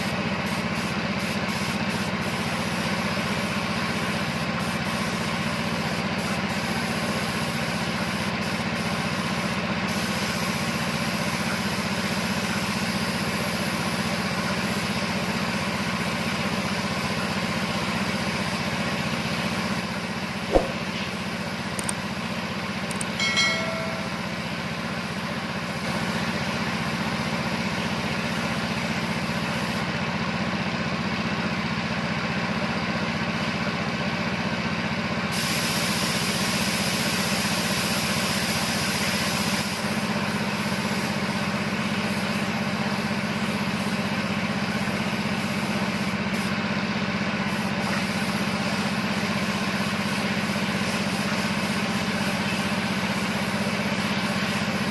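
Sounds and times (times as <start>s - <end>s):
air compressor humming with hiss: 0.0s - 29.9s, 35.3s - 54.9s
sharp click: 20.5s - 21.2s, 21.8s - 22.0s, 22.9s - 24.2s
brief high tone: 23.1s - 24.6s.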